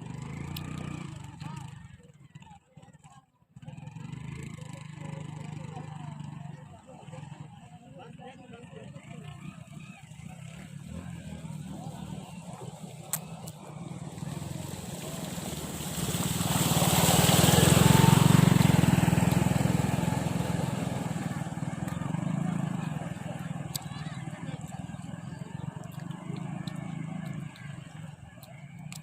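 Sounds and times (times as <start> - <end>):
motor vehicle passing: 0.0 - 2.5, 8.8 - 29.0.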